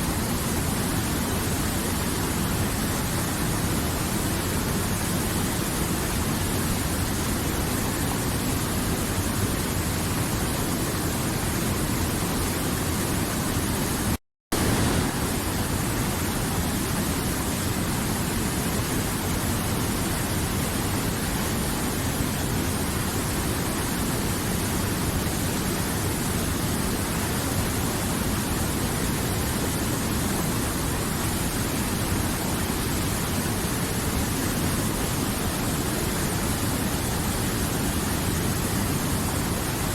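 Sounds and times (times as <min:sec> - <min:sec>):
river water rushing: 0:14.6 - 0:39.9.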